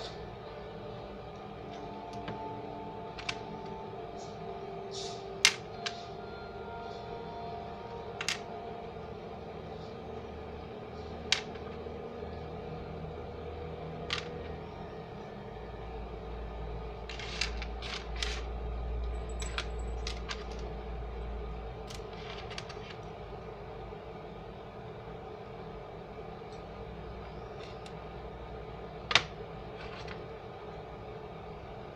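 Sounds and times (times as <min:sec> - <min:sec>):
steady low hum: 0:00.0 - 0:31.9
tools and glass clinking: 0:19.2 - 0:20.6.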